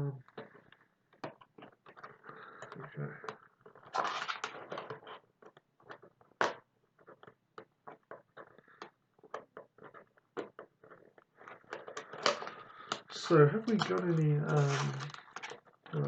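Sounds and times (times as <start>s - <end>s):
plastic packaging crinkling: 3.8s - 5.1s, 12.0s - 16.0s.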